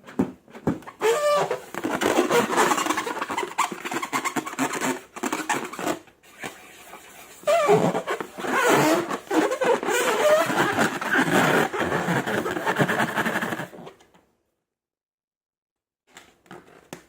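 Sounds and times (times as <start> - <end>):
rubber balloon squeals: 0.9 - 6.6, 7.4 - 13.9.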